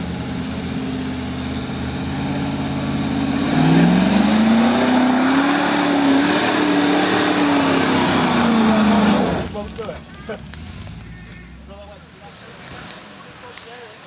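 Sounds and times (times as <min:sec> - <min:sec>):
car engine running and revving: 0:00.0 - 0:13.7.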